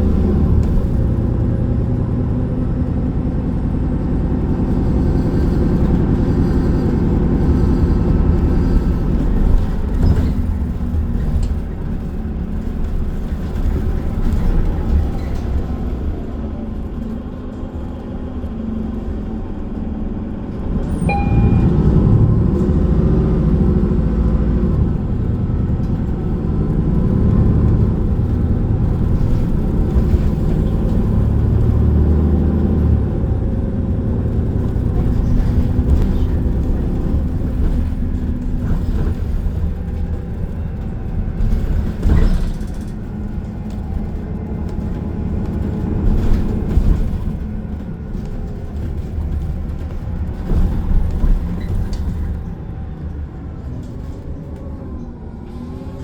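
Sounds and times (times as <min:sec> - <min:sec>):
bus engine and road rumble: 0:00.0 - 0:56.0
short beep: 0:21.0 - 0:22.0.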